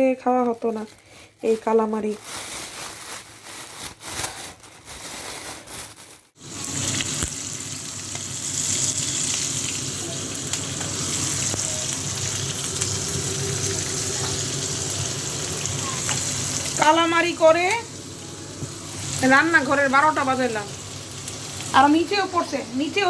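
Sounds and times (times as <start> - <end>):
food sizzling in hot oil: 6.4 - 23.0.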